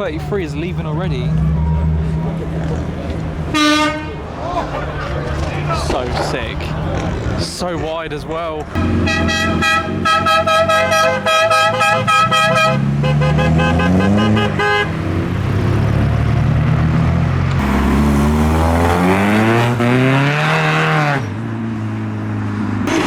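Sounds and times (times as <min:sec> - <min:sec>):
car engine revving: 0:00.0 - 0:07.8, 0:08.6 - 0:22.0, 0:22.7 - 0:23.0
car horn tooting: 0:03.5 - 0:04.3, 0:08.8 - 0:15.0.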